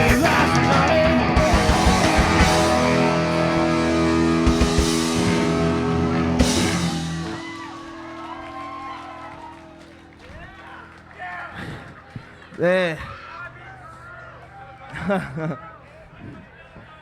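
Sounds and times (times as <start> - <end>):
live rock band playing: 0.0 - 10.3
held guitar chord ringing: 0.0 - 12.2.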